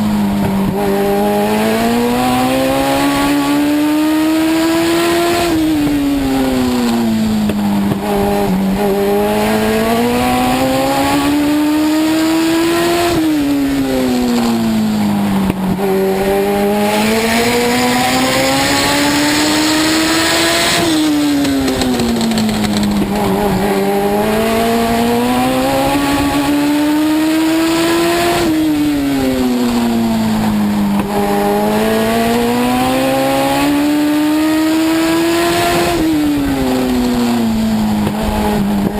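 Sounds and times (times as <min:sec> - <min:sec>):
race car engine running hard: 0:00.0 - 0:38.9.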